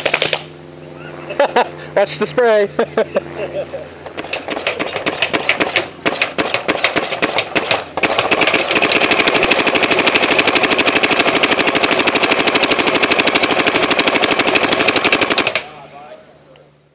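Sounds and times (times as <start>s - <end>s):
paintball marker firing: 0.0s - 0.5s, 4.0s - 15.7s.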